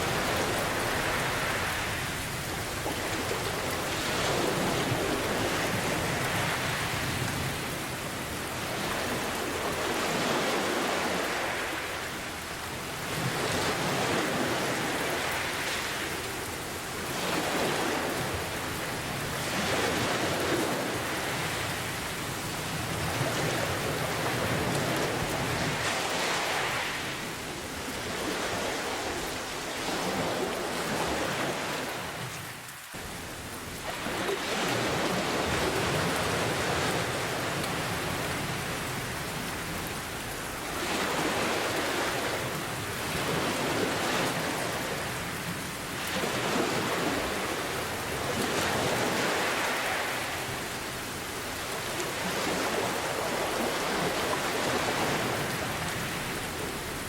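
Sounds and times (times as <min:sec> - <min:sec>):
ocean waves washing: 0:00.0 - 0:57.0
steady rain: 0:00.0 - 0:57.0.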